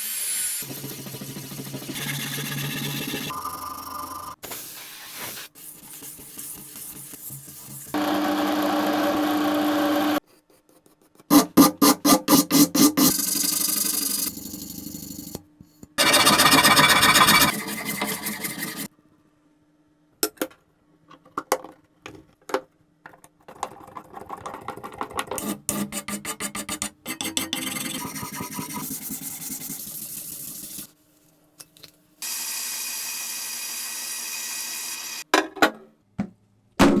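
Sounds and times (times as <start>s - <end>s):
filing strokes on metal: 10.2s - 14.6s, 16.0s - 18.9s, 25.4s - 30.9s
abrasive grinding noise: 16.0s - 18.9s.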